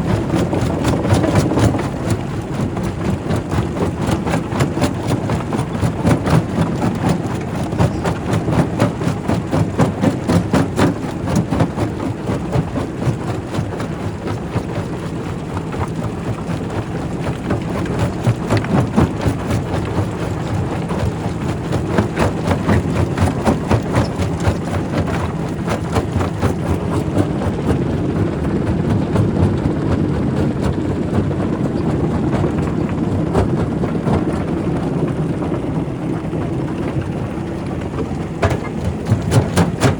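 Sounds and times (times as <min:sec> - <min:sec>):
rock knocking and clattering: 0:38.0 - 0:39.9.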